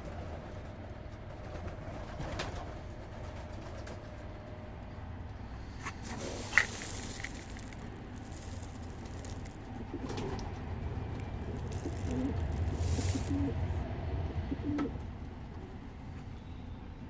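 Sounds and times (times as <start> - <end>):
pigeons cooing softly: 11.5 - 13.6, 14.4 - 15.0.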